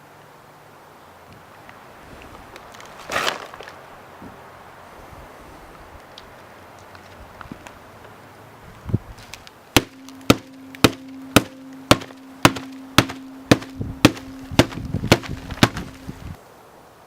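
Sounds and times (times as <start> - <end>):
steady hum: 8.8 - 16.4
sharp knocks: 9.8 - 16.3.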